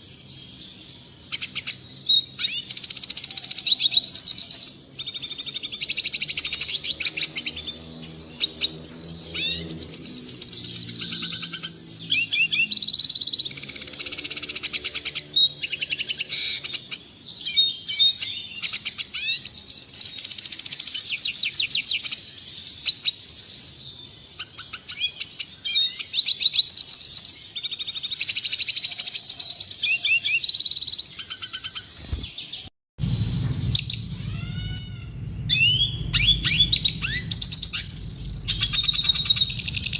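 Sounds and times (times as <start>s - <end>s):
bird twittering and trilling: 0.0s - 39.9s
low hum: 33.0s - 39.9s.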